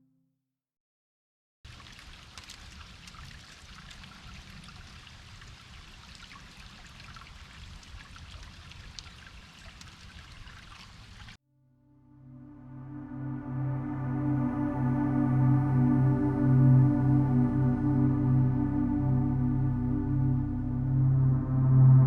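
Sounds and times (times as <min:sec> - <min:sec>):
water trickling in stream: 0:01.7 - 0:11.4.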